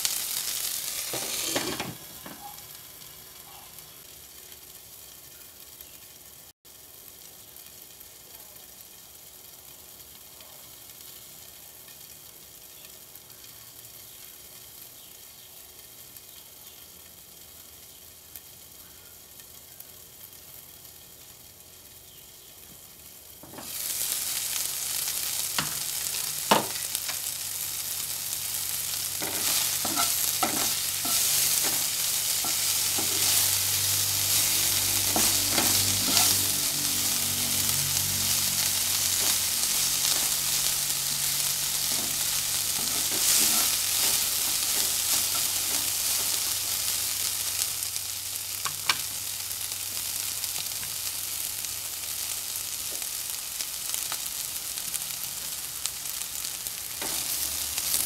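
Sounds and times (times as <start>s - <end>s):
food sizzling in oil: 0.0s - 58.0s
spatula scraping a pan: 0.9s - 2.0s, 29.2s - 36.5s, 41.8s - 46.8s.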